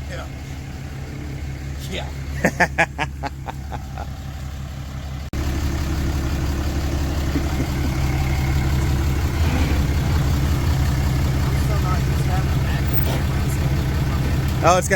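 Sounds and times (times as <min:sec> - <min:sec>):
truck engine idling: 0:00.0 - 0:14.9.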